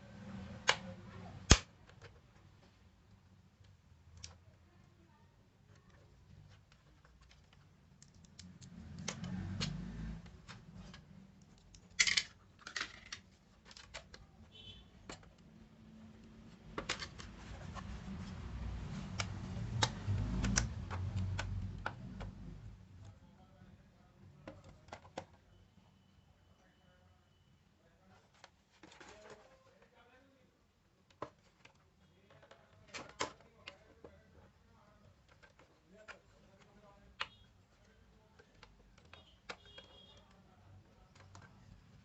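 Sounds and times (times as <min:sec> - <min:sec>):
rubbing handling noise: 0:10.3 - 0:22.6.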